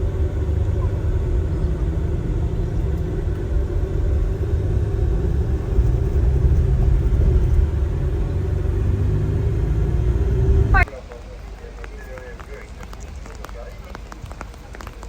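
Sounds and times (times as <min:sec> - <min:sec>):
coach engine and tyres rumbling: 0:00.0 - 0:15.0.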